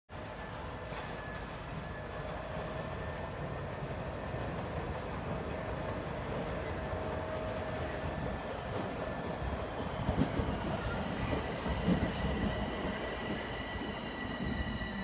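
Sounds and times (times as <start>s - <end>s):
subway train rumble: 0.1s - 15.0s.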